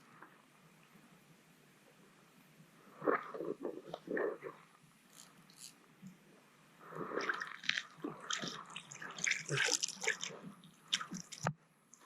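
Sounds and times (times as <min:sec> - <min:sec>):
fish thrashing in water: 0:07.0 - 0:10.4
water splashing and dripping: 0:07.1 - 0:12.0.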